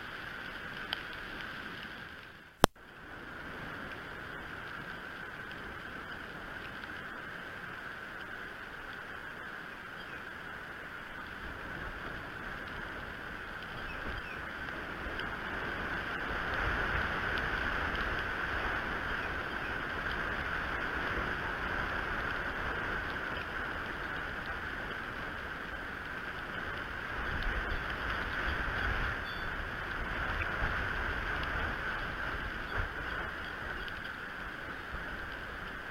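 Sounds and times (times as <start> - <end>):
wind buffeting microphone: 11.5 - 35.9.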